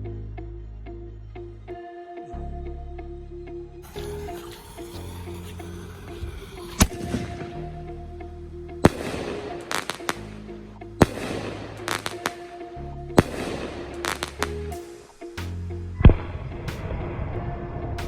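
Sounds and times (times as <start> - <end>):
background music with bass: 0.0 - 18.0
fireworks hissing crackle: 3.8 - 7.5.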